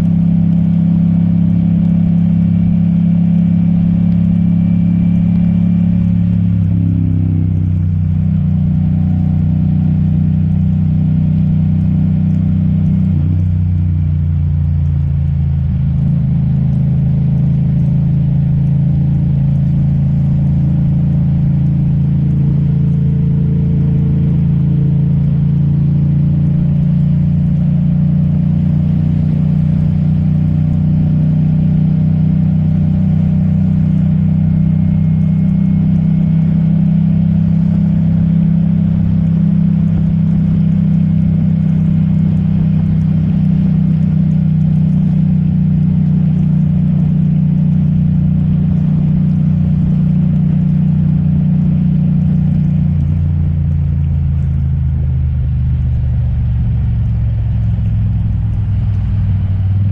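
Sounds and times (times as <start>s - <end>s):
motorcycle engine running: 0.0s - 59.9s
tyre noise on wet road: 0.0s - 59.9s
wind: 0.0s - 59.9s.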